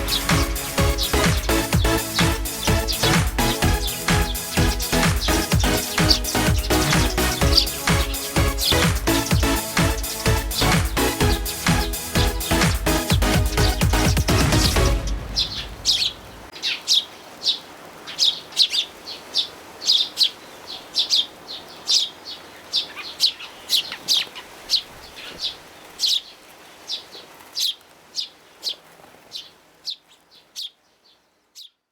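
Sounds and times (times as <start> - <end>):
background music: 0.0 - 16.5
sparrows chirping: 0.0 - 31.8.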